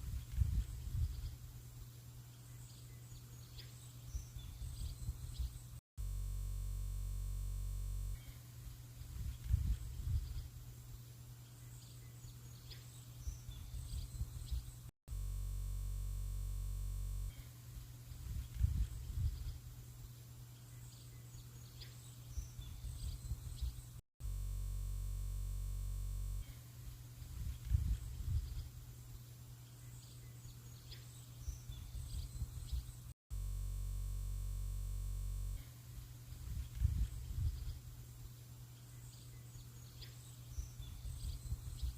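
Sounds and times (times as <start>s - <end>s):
steady hum: 0.0s - 30.3s, 31.4s - 41.9s
low rumbling outdoor ambience: 0.0s - 41.9s
bird chirps: 2.2s - 5.8s, 11.4s - 14.9s, 18.3s - 24.0s, 26.4s - 33.1s, 36.3s - 41.9s
steady buzzing tone: 4.1s - 11.4s, 13.2s - 20.3s, 22.3s - 29.4s, 31.7s - 38.6s.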